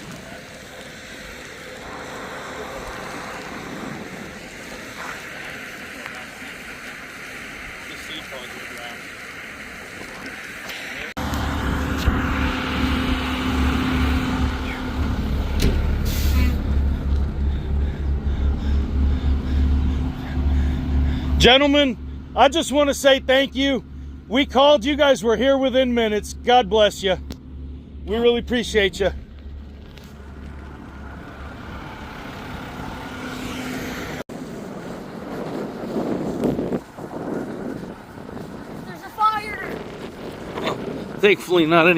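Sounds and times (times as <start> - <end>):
fire truck idling: 0.0 - 35.2
outdoor noise: 0.0 - 41.9
vehicle engine running: 0.0 - 41.9
air hiss: 15.9 - 16.6.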